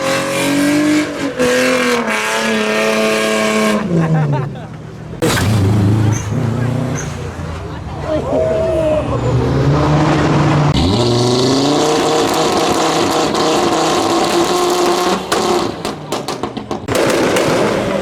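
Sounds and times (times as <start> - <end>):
car engine revving hard: 0.0 - 4.0, 9.4 - 18.0.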